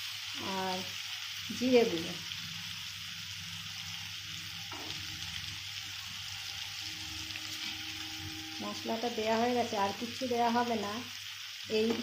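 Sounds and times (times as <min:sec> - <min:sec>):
vegetables sizzling in oil: 0:00.0 - 0:12.0
metal spatula stirring: 0:06.3 - 0:09.7.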